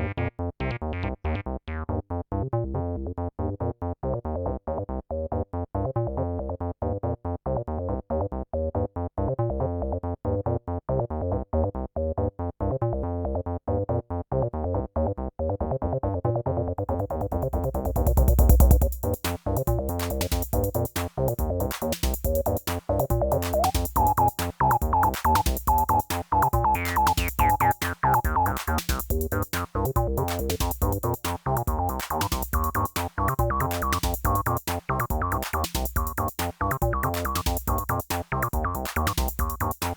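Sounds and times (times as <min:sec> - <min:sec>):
acid synth bass line: 0:16.6 - 0:39.9
drum machine hi-hats: 0:16.8 - 0:39.9
drum hits: 0:16.9 - 0:34.9.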